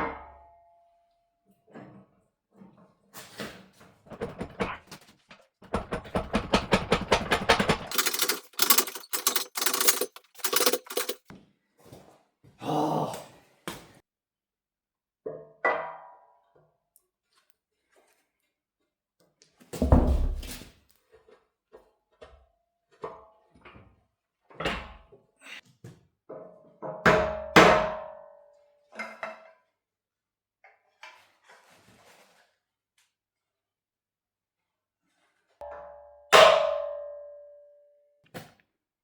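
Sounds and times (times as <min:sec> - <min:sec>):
metallic clanks of steel parts: 0:05.9 - 0:11.2.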